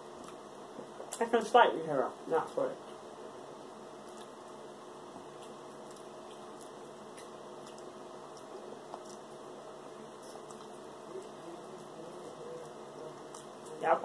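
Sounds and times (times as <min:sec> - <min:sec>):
faint chewing and mouth clicks: 0:00.0 - 0:01.3, 0:04.0 - 0:13.8.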